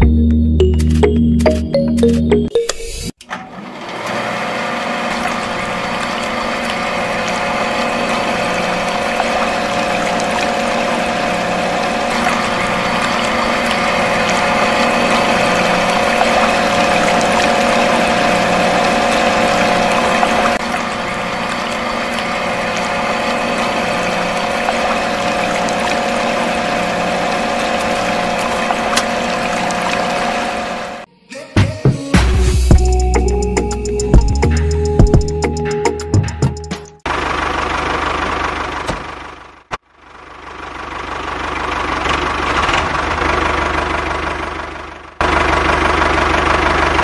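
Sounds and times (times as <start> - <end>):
water pump humming: 3.3 - 31.1
water pouring into tank: 4.6 - 31.0.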